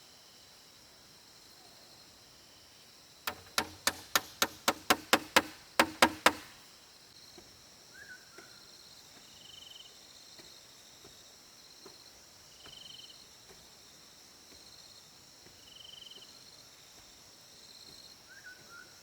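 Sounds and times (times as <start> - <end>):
hammer striking a nail: 3.3 - 6.6.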